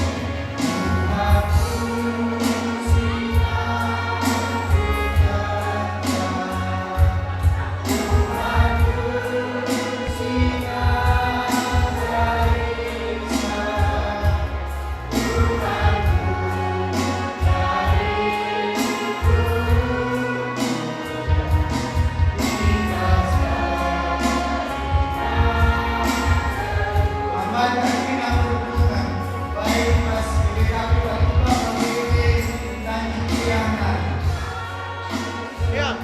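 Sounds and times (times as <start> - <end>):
group singing held notes: 0.0 - 36.0
instrumental music with beat: 0.0 - 36.0.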